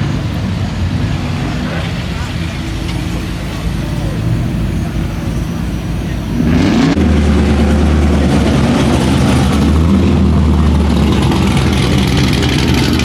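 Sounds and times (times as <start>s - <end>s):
car engine idling: 0.0s - 13.0s
engine revving: 4.0s - 13.0s.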